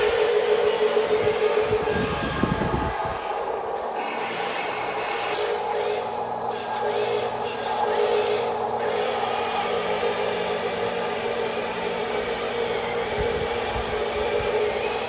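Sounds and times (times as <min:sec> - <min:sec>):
electric motors whirring: 0:00.0 - 0:15.0.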